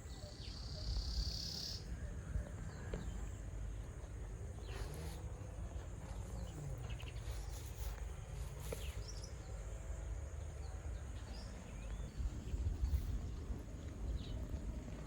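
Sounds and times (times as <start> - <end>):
faint bird chirps: 0.0 - 9.8
high insect drone: 0.3 - 15.0.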